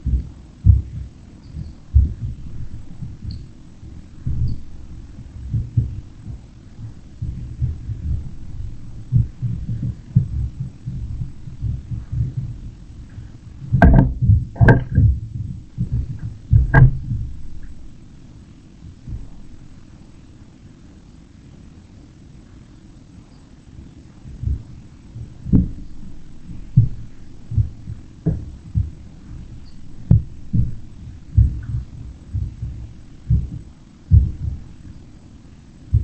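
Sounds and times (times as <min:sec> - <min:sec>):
sharp knocks: 0:13.1 - 0:15.2, 0:15.8 - 0:17.8, 0:25.5 - 0:34.7.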